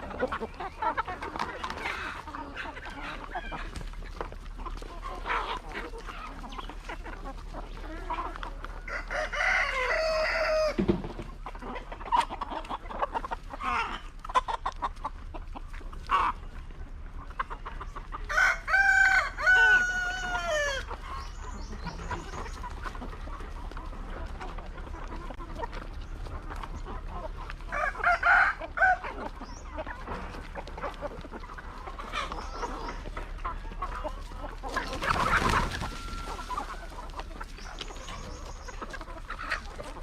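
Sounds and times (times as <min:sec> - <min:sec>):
hens clucking: 0:00.0 - 0:40.0
rooster crowing: 0:08.8 - 0:10.8, 0:18.3 - 0:20.9.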